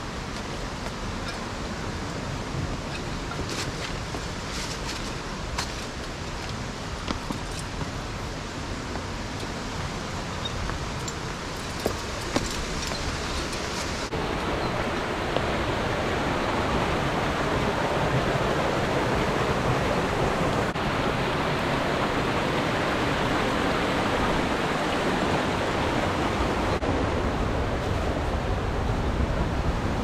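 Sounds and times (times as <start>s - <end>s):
stream water rushing: 0.0s - 30.0s.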